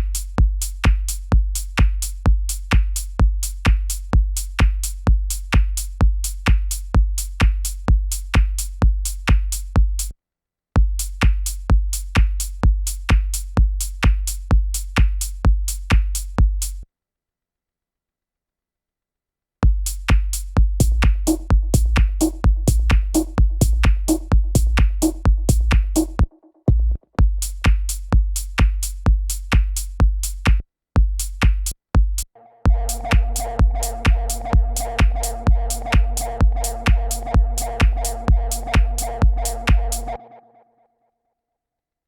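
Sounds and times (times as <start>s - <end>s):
techno drum loop: 0.0s - 10.1s, 10.8s - 16.8s, 19.6s - 40.2s
synth repeating notes: 32.7s - 40.3s.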